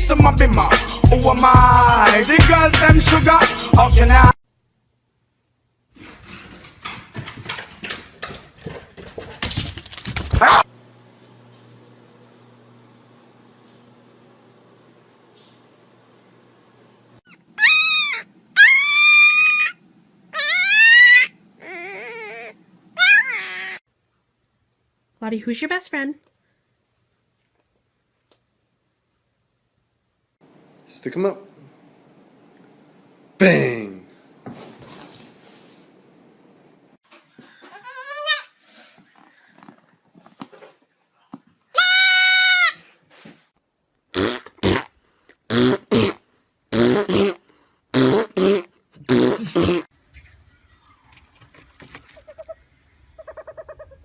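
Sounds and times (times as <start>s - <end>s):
puppy howling: 10.4s - 10.7s, 17.3s - 23.8s
goat kid bleating: 37.6s - 38.6s, 41.8s - 42.8s.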